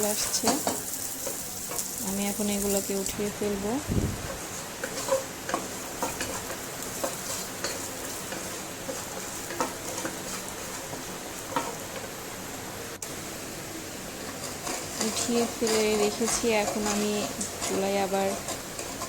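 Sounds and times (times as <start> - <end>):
food sizzling in a pan: 0.0 - 19.0
spatula scraping a pan: 4.3 - 11.8, 14.2 - 19.0.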